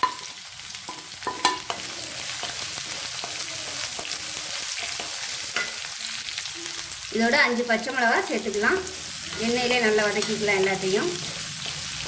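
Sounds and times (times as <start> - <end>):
metal spoon clinking on pan: 0.0 - 0.3, 0.9 - 2.6, 4.8 - 5.8
onions sizzling in hot oil: 0.0 - 12.0.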